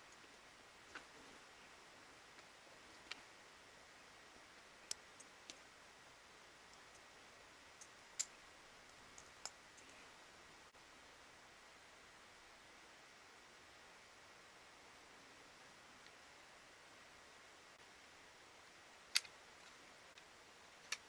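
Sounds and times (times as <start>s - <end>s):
faint steady hiss: 0.0s - 21.0s
small sharp clicks: 7.7s - 10.2s, 18.6s - 21.0s.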